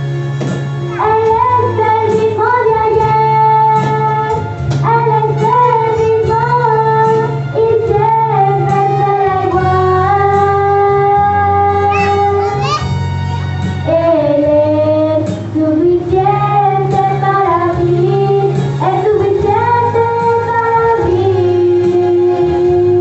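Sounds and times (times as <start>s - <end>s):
instrumental accompaniment: 0.0s - 23.0s
person singing worship song: 0.9s - 12.4s, 13.8s - 23.0s.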